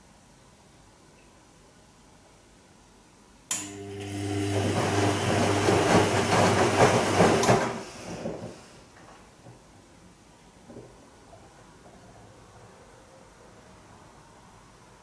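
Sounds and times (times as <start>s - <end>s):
washing machine motor click: 3.5s - 7.8s
washing machine motor humming: 3.6s - 8.8s.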